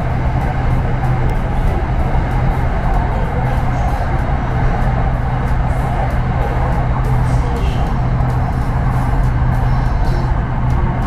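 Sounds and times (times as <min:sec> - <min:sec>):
background music: 0:00.0 - 0:11.0
electric train rumble and hum: 0:00.0 - 0:11.0.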